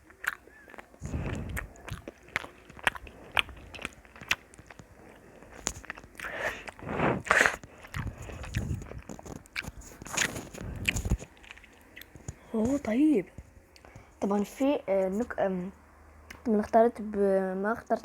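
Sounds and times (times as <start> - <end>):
person chewing crunchy snack: 0.0 - 12.5.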